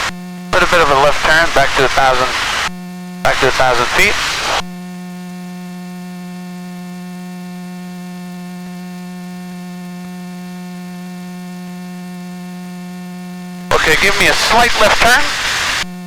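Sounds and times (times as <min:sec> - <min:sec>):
steady electrical hum: 0:00.0 - 0:04.8, 0:13.2 - 0:16.0.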